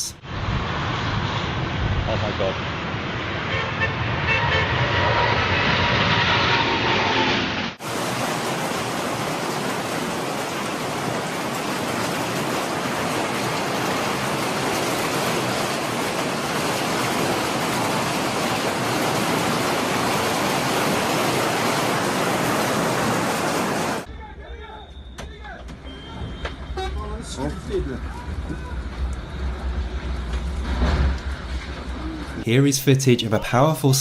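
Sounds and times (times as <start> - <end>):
rushing hiss of rain: 7.8 - 24.1.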